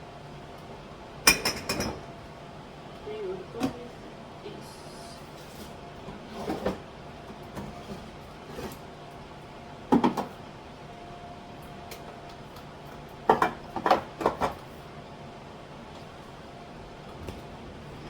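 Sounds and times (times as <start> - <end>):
faint steady hum: 0.0 - 6.2.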